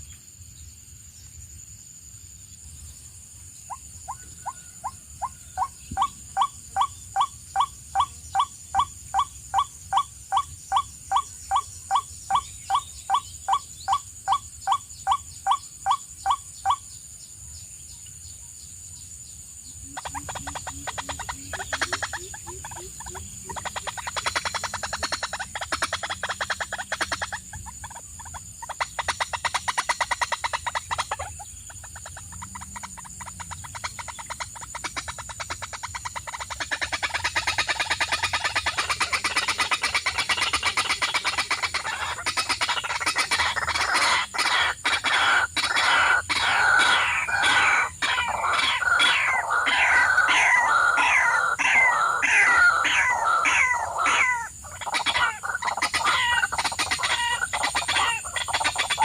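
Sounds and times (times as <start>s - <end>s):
birds calling: 19.7s - 59.0s.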